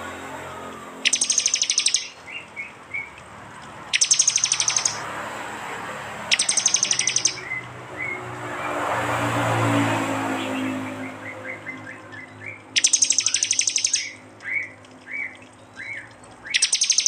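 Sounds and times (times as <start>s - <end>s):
short bird chirps: 1.0s - 3.1s, 3.9s - 5.0s, 6.3s - 7.6s, 12.8s - 17.0s
bird trill: 1.0s - 3.2s, 3.9s - 5.0s, 6.3s - 8.2s, 10.5s - 17.0s.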